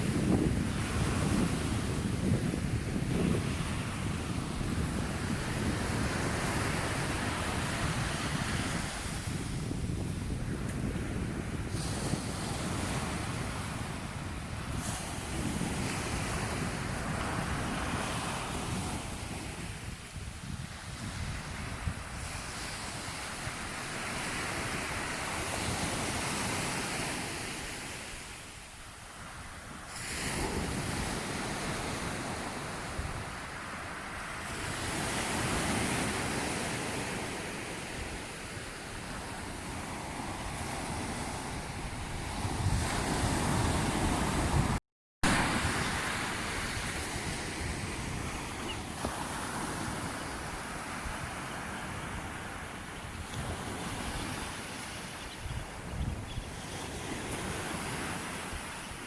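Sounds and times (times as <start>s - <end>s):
sea waves washing in: 0.0s - 19.8s, 29.2s - 55.1s
wind buffeting microphone: 0.0s - 23.1s, 38.0s - 58.7s.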